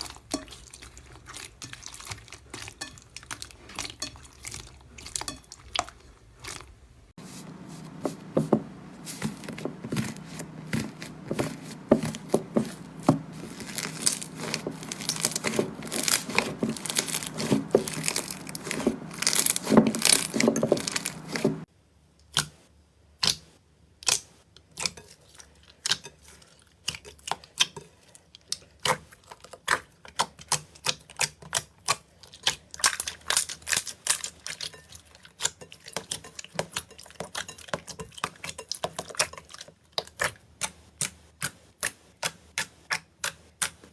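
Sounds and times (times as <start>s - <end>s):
crunchy slime being pressed: 9.1s - 21.6s.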